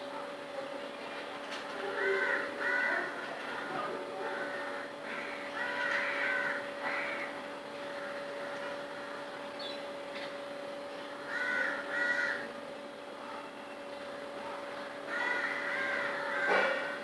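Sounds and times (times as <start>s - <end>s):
crow cawing: 2.0s - 3.2s, 4.3s - 9.2s, 11.2s - 12.5s, 15.0s - 17.0s.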